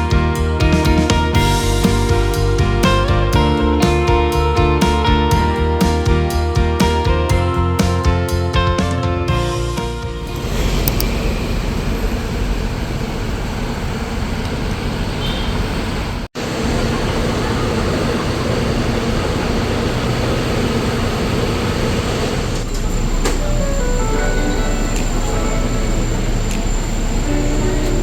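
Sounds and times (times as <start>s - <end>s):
vehicle rumble and road noise: 10.2s - 28.0s.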